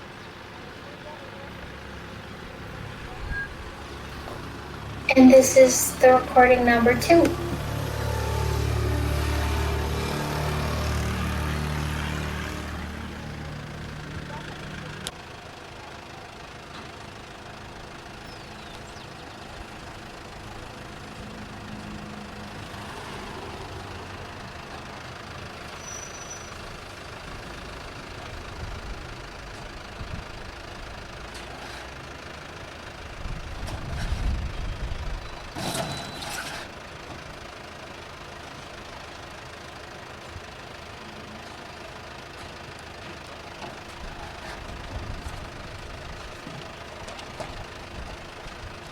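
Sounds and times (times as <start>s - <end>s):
hum of vehicle engines: 0.0s - 48.9s
low-pitched vehicle passing: 1.4s - 15.1s.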